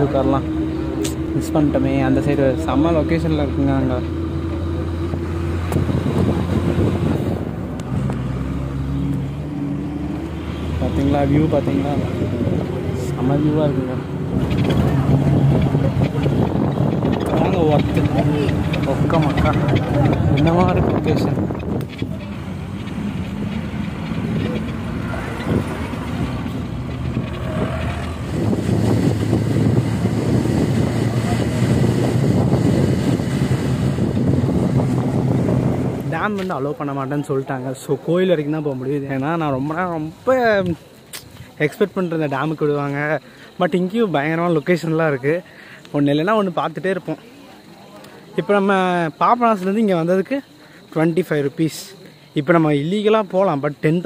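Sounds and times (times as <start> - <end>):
bus body rattling: 0.0 - 41.5
bus engine drone: 0.0 - 54.0
road noise: 0.0 - 54.0
wind noise: 5.0 - 8.4, 10.3 - 36.6.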